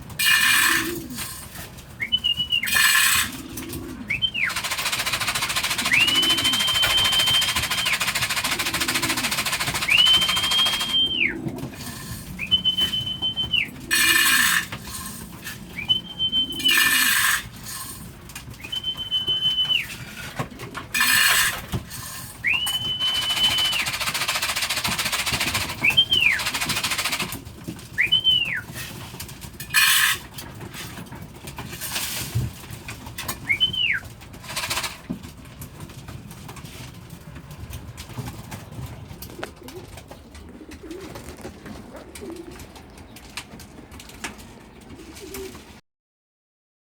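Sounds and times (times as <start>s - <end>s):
person whistling: 2.0s - 2.8s, 5.9s - 8.0s, 9.8s - 11.4s, 12.4s - 13.7s, 15.8s - 17.1s, 18.6s - 20.0s, 22.4s - 23.9s, 25.8s - 26.4s, 28.0s - 28.6s, 33.5s - 34.0s.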